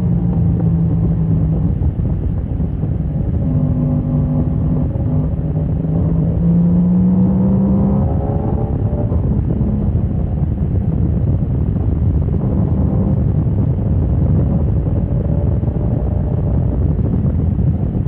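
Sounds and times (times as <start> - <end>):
motorcycle engine running hard: 0.0 - 18.0
wind rumble on microphone: 0.0 - 18.0.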